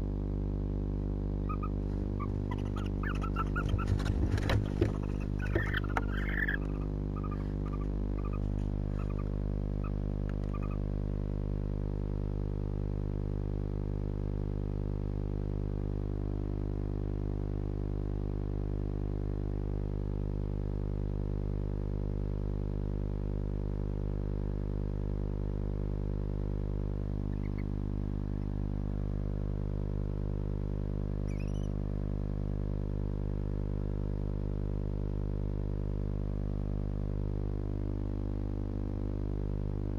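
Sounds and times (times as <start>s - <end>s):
electrical hum: 0.0s - 39.9s
faint rising squeak: 1.5s - 10.8s, 31.3s - 31.8s
faint short chirps: 27.3s - 27.8s, 31.2s - 31.8s.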